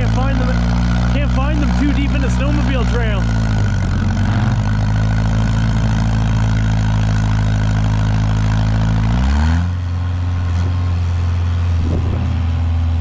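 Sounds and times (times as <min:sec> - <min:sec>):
engine at high revs: 0:00.0 - 0:13.0.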